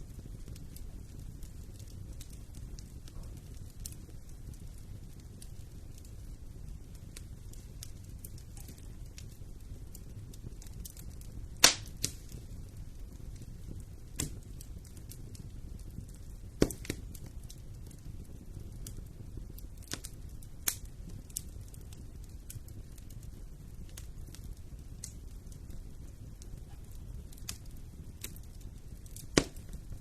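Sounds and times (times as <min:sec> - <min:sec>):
low fire rumble: 0:00.0 - 0:30.0
wood fire crackling: 0:00.0 - 0:30.0
wood snapping and popping: 0:10.6 - 0:12.4, 0:16.6 - 0:17.2, 0:28.2 - 0:29.9.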